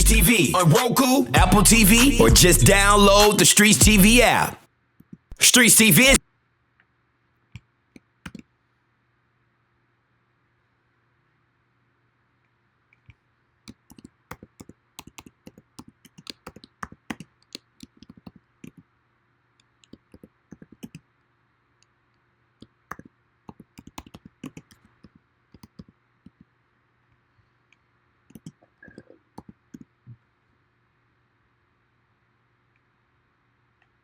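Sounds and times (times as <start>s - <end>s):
keyboard and mouse clicks: 7.6s - 8.5s, 13.0s - 18.9s, 19.6s - 21.1s, 22.6s - 26.5s, 27.7s - 30.2s.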